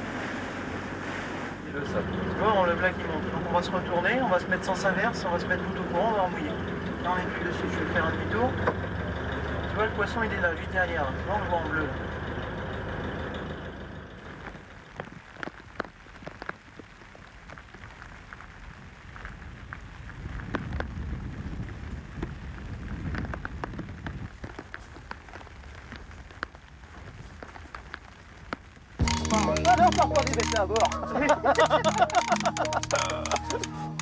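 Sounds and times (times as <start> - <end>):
rain pattering: 0.0 - 34.0.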